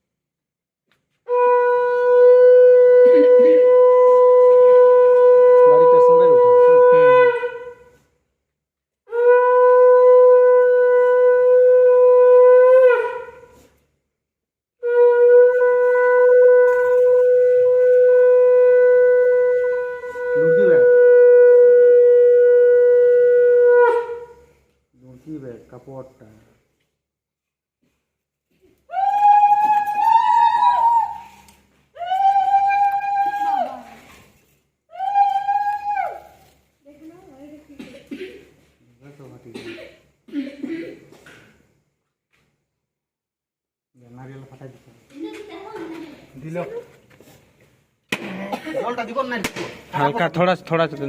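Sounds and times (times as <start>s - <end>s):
conch shell blasts: 1.3s - 8.0s, 9.1s - 13.6s, 14.8s - 24.5s.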